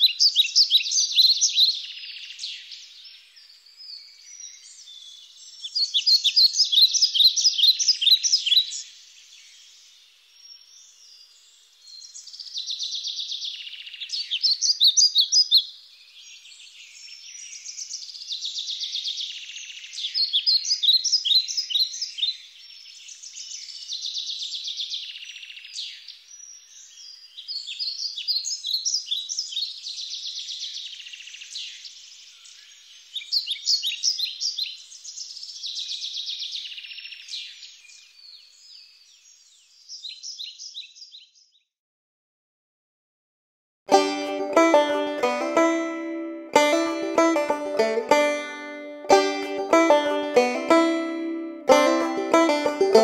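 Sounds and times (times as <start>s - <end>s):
birds chirping and trilling: 10.7s - 41.7s.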